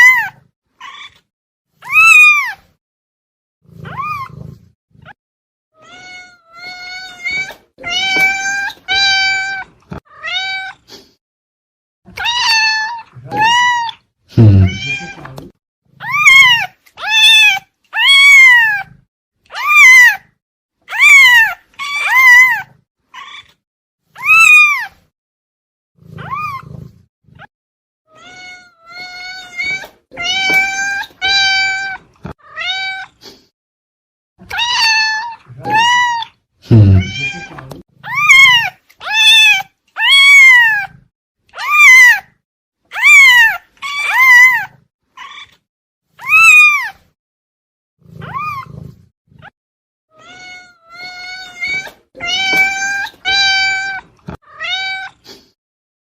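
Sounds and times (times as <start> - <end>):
cat meowing: 1.8 - 2.6, 3.8 - 4.5, 5.8 - 10.9, 12.1 - 15.4, 16.0 - 20.2, 20.9 - 23.6, 24.2 - 25.0, 26.2 - 26.7, 28.1 - 33.2, 34.4 - 41.0, 41.6 - 47.0, 48.2 - 48.8, 50.1 - 55.3.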